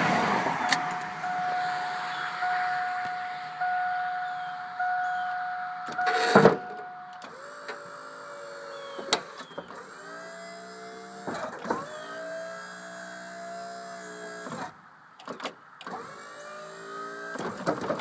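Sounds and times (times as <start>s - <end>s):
hydraulic pump motor whining: 5.2s - 14.7s.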